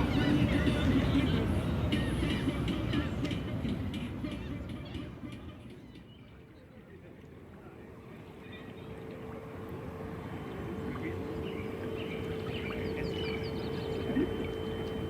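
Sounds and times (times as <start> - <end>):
low rumble and hum: 0.0 - 15.0
bird chirps: 11.4 - 14.8.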